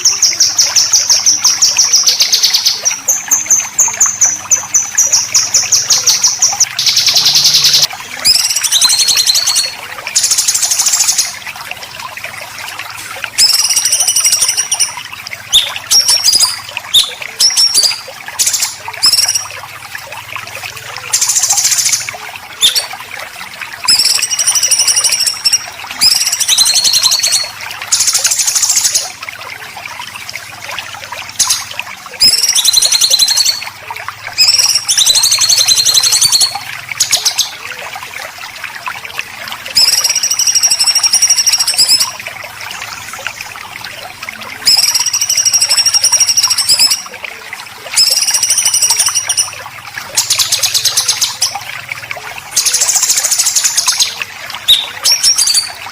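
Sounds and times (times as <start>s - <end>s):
songbird harsh rattling song: 0.0s - 11.4s, 13.4s - 19.6s, 52.6s - 55.8s
water trickling: 0.0s - 55.9s.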